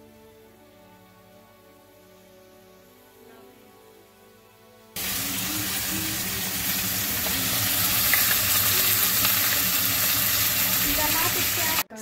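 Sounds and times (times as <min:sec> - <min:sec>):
soft background music: 0:00.0 - 0:12.0
food sizzling in a pan: 0:05.0 - 0:11.9.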